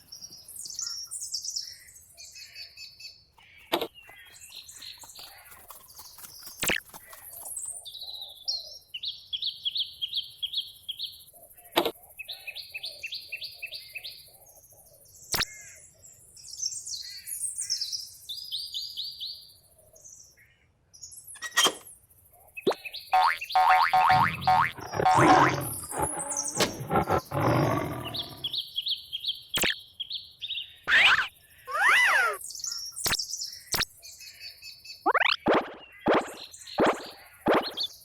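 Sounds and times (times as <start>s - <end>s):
birds trilling: 23.2s - 28.6s, 30.9s - 32.4s
sharp clicks: 24.2s - 28.5s.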